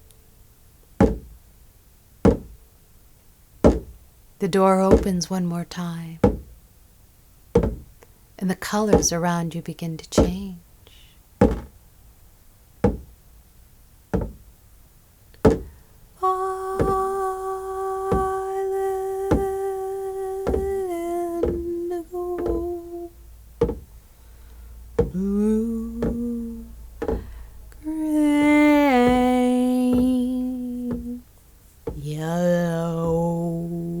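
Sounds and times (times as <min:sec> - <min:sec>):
soft knocking beat: 0:01.0 - 0:01.4, 0:02.3 - 0:02.6, 0:03.6 - 0:04.0, 0:04.9 - 0:05.4, 0:06.2 - 0:06.6, 0:07.6 - 0:08.0, 0:08.6 - 0:09.3, 0:10.1 - 0:10.5, 0:11.4 - 0:11.8, 0:12.8 - 0:13.2, 0:14.2 - 0:14.5, 0:15.4 - 0:15.8, 0:16.7 - 0:17.2, 0:18.0 - 0:24.0, 0:24.9 - 0:33.5
woman humming: 0:16.2 - 0:23.2, 0:25.0 - 0:31.3, 0:31.9 - 0:34.0.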